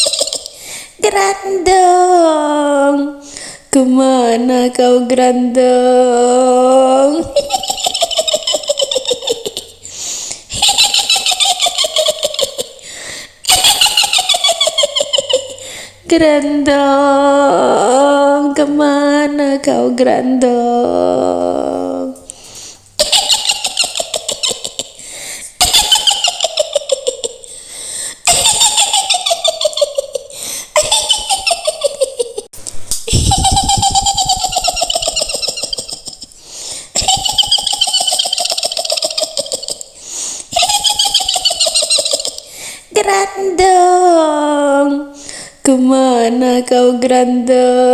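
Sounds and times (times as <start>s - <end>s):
woman's high witch cackle: 0.0s - 0.6s, 7.0s - 9.8s, 10.5s - 12.8s, 13.4s - 15.6s, 23.0s - 25.0s, 25.6s - 27.5s, 28.2s - 32.5s, 33.1s - 36.4s, 37.0s - 42.5s
hissing breath: 9.8s - 10.5s, 12.8s - 13.4s, 22.3s - 23.0s, 25.0s - 25.6s, 27.4s - 28.3s, 36.3s - 37.0s, 40.0s - 40.6s.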